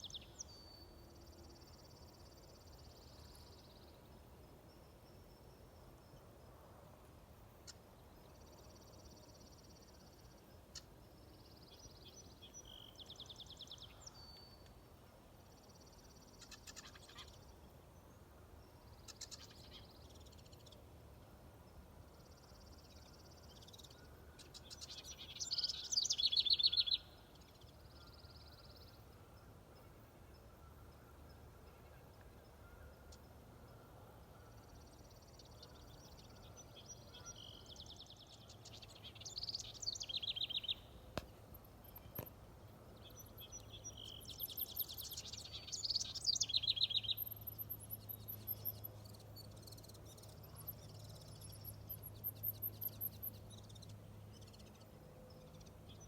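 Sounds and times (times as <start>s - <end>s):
warbler singing: 7.6s - 14.7s, 22.2s - 29.0s, 34.5s - 42.3s, 42.9s - 56.0s.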